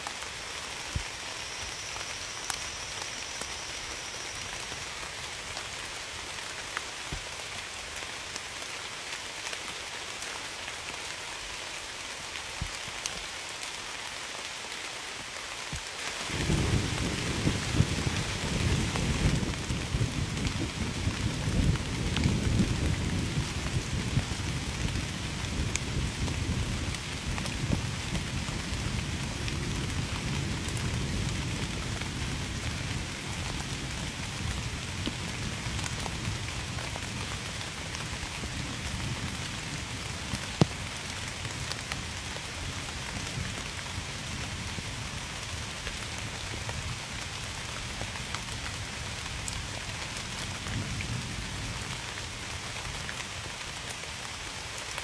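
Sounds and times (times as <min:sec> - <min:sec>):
heavy rain: 0:00.0 - 0:55.0
distant thunder rumble: 0:16.3 - 0:24.2.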